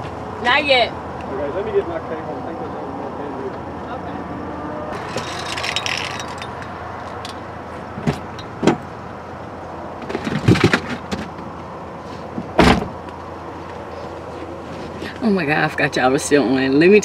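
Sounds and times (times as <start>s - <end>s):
sharp clunks and knocks: 8.0s - 8.9s, 10.0s - 11.5s, 12.3s - 13.0s.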